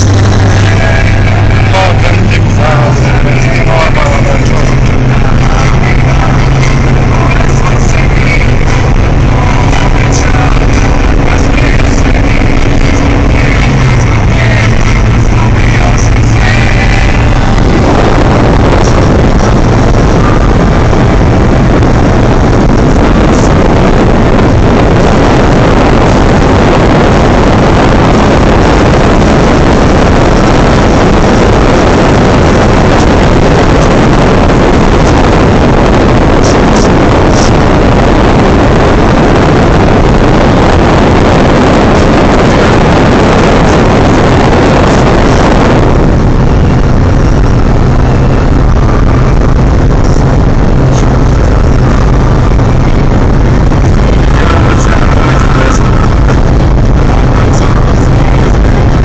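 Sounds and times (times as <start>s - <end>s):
diesel engine running hard: 0.0s - 59.0s
wind and road noise: 0.0s - 59.0s.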